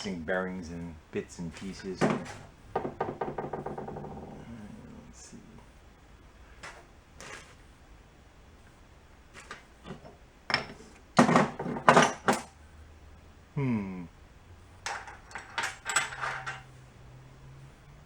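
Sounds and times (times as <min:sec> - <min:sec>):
metal parts clinking and rattling: 0:01.6 - 0:02.6, 0:09.4 - 0:12.5, 0:14.8 - 0:16.8.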